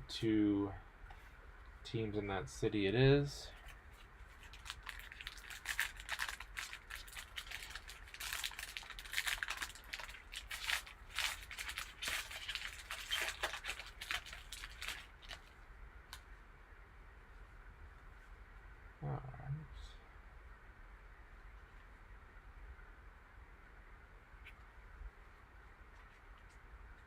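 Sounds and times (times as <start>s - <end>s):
plastic wrapping tearing and crinkling: 3.9s - 15.5s.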